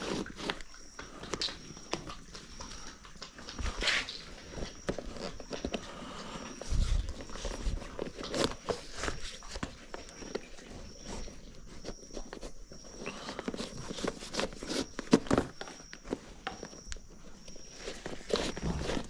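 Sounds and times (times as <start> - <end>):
horse steps and knocks: 13.5 - 19.0.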